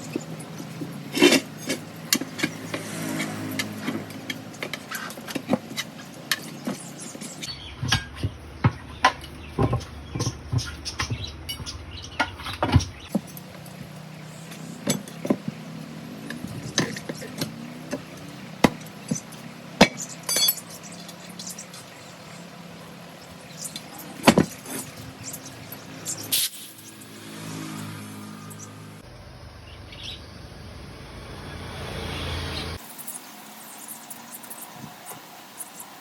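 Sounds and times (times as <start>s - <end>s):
sharp knocks and clinks: 19.8s - 20.8s.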